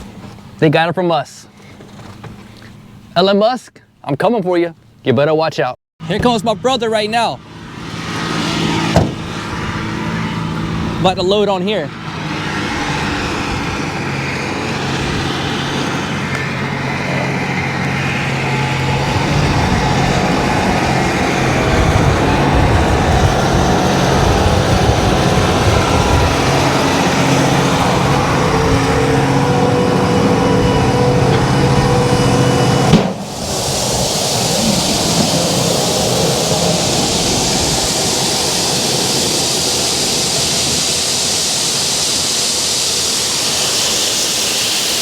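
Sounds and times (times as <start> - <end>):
heavy diesel engines running: 6.0 - 45.0
steady hiss: 33.1 - 45.0.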